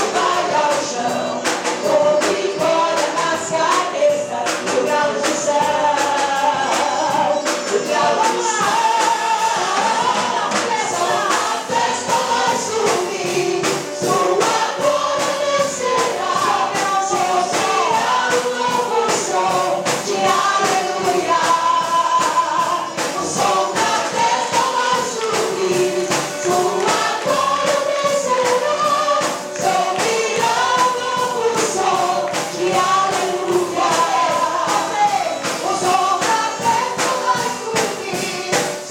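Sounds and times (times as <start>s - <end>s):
band accompaniment with beat: 0.0s - 38.9s
group singing gospel song: 0.0s - 38.9s.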